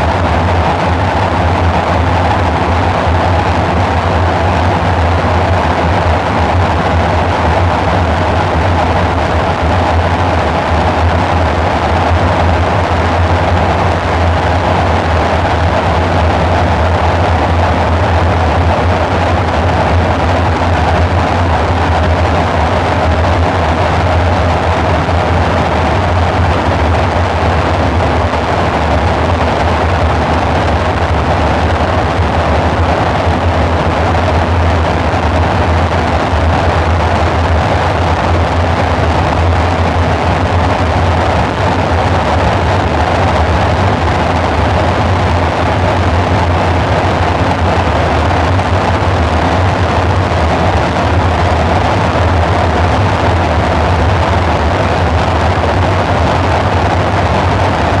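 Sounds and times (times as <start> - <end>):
noisy rushing wash: 0.0 - 58.0.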